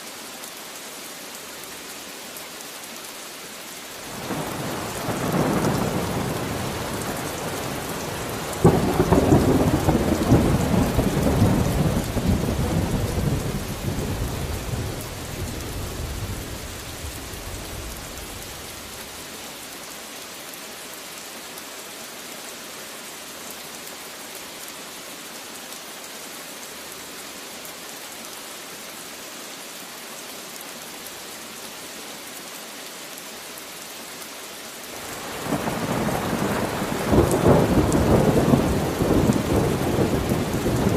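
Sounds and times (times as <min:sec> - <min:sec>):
steady rain: 0:00.0 - 0:40.9
thunder rumbling: 0:35.1 - 0:40.9.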